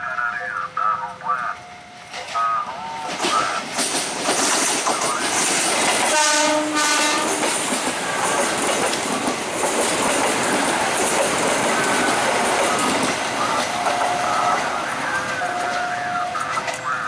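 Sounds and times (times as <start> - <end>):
train wheels clattering: 2.0 - 17.0
train horn blast: 6.1 - 7.5.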